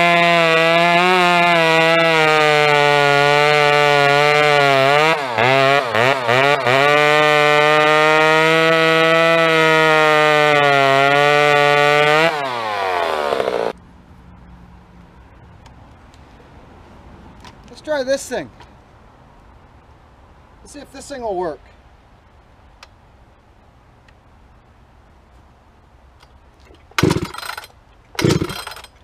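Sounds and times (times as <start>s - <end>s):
chainsaw running at high revs: 0.0s - 13.8s, 27.0s - 28.9s.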